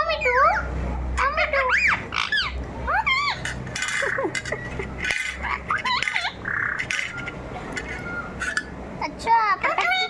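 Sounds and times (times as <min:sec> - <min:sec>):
parrot squawking: 0:01.2 - 0:08.7, 0:09.6 - 0:10.0.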